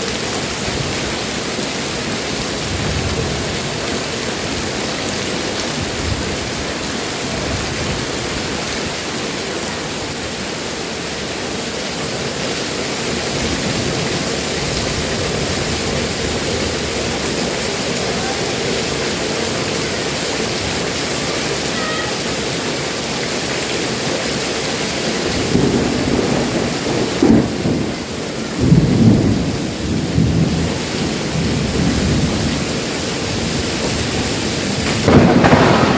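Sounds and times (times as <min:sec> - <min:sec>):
heavy rain falling: 0:00.0 - 0:35.9
thunder rumbling and cracking: 0:02.2 - 0:09.0, 0:13.1 - 0:17.8, 0:25.2 - 0:35.9.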